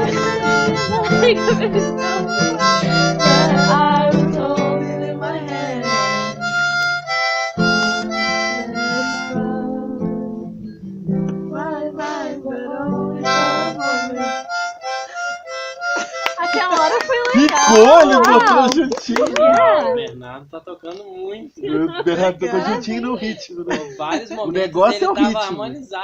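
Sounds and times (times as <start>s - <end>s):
harmonica playing: 0.0s - 10.2s, 13.0s - 18.4s
strummed acoustic guitar: 0.0s - 18.2s.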